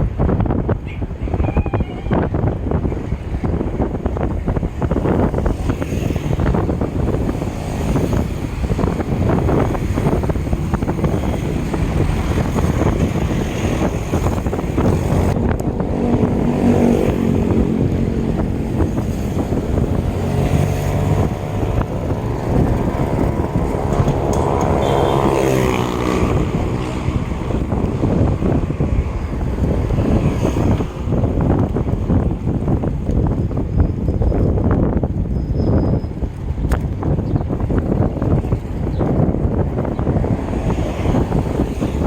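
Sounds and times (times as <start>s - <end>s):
wind buffeting microphone: 0.0s - 42.0s
motor vehicle engine hum: 2.1s - 42.0s.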